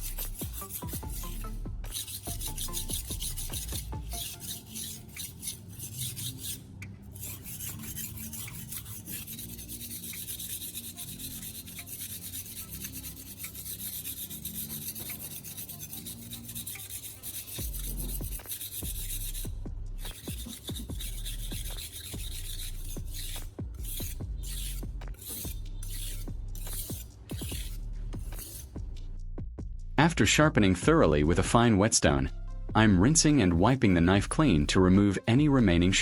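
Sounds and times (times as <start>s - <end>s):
knife scraping on whetstone: 0.0s - 28.8s.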